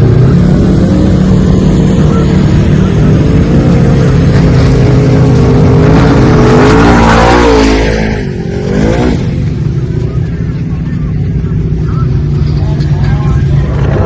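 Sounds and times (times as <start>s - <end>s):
rushing noise: 0.0s - 10.0s
off-road vehicle engine revving: 0.0s - 14.0s.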